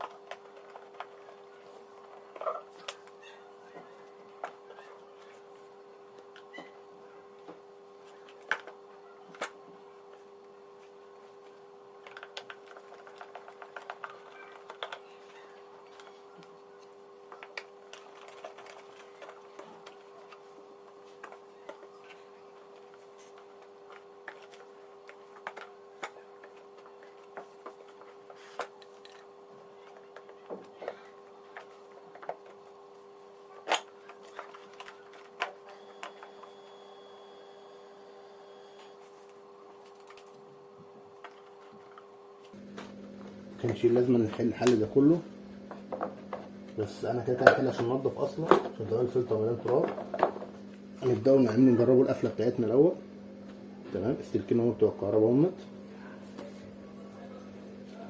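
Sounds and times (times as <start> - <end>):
steady hum: 0.0 - 58.0
plastic parts clicking and knocking: 12.0 - 16.1.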